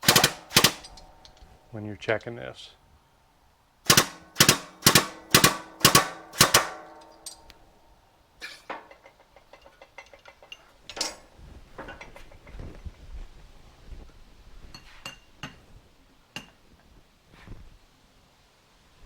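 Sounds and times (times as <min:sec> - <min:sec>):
metal parts clanking: 0:00.0 - 0:01.6, 0:03.9 - 0:07.6, 0:08.4 - 0:12.7.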